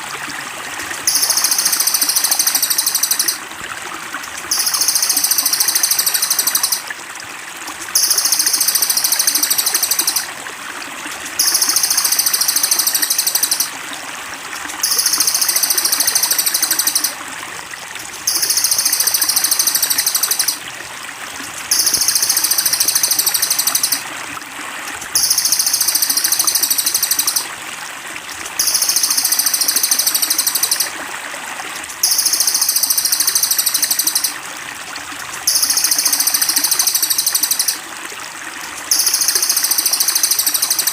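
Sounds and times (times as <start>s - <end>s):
babbling water: 0.0s - 40.9s
high-pitched bird trilling: 1.1s - 3.4s, 4.5s - 6.9s, 8.0s - 10.3s, 11.4s - 13.7s, 14.8s - 17.2s, 18.2s - 20.6s, 21.7s - 24.0s, 25.2s - 27.5s, 28.6s - 30.9s, 35.5s - 37.8s.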